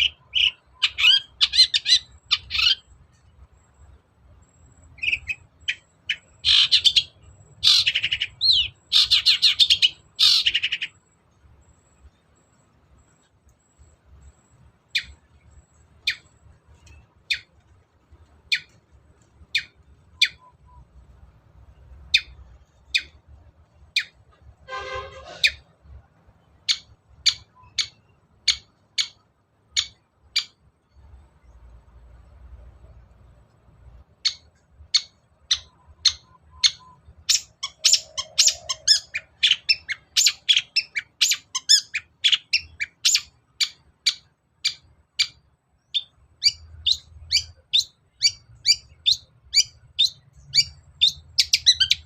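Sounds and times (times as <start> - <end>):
bird singing rasping chatter: 0.0 - 24.4, 25.1 - 31.1, 34.3 - 52.0
bird harsh rasping call: 5.1 - 11.0, 24.0 - 25.7.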